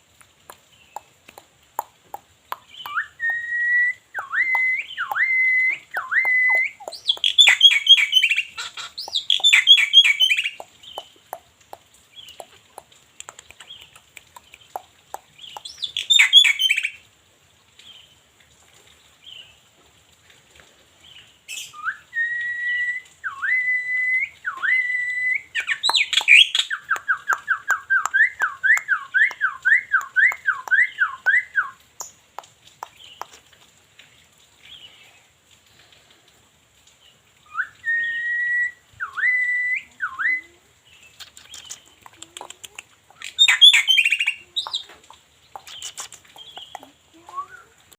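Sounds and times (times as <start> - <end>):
harsh bird chattering: 6.5 - 11.1, 41.2 - 47.0.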